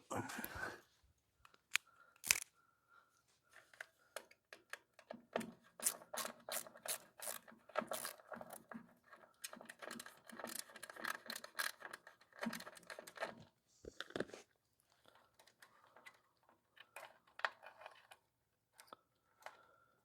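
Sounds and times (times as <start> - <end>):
metal parts clicking and scraping: 2.2 - 2.5, 5.8 - 8.7, 9.4 - 13.3.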